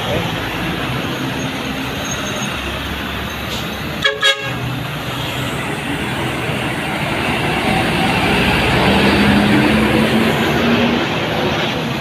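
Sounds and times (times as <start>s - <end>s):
bus diesel engine and road noise: 0.0s - 12.0s
vehicle horn toots: 4.0s - 4.7s.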